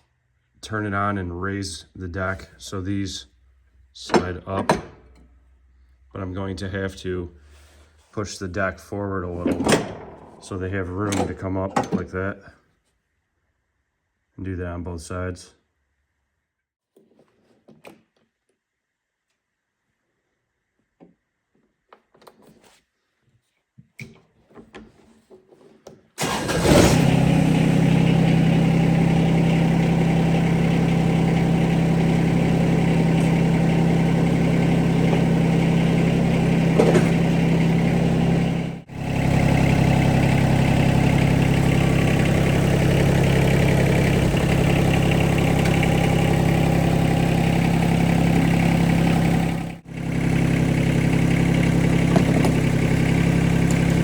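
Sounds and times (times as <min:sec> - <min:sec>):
tractor diesel engine running: 0:09.1 - 0:11.6, 0:26.2 - 0:54.0.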